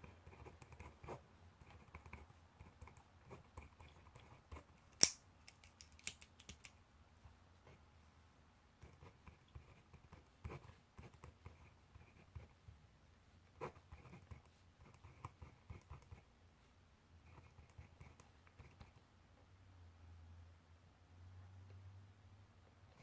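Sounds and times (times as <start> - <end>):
pencil writing on paper: 0.0 - 4.7, 8.8 - 12.7, 13.5 - 16.3, 17.3 - 19.0.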